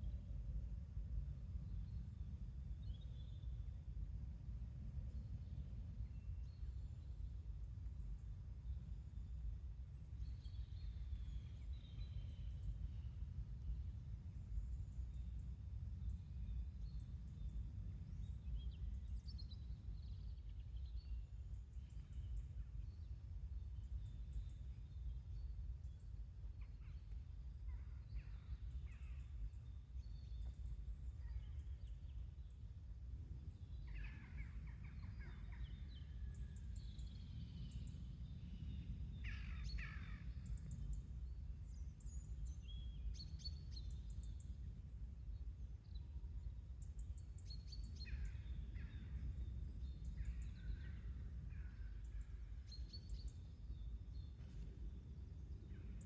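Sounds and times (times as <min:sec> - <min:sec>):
low background rumble: 0:00.0 - 0:56.0
bird calls and chirps: 0:33.5 - 0:44.6, 0:46.8 - 0:54.8.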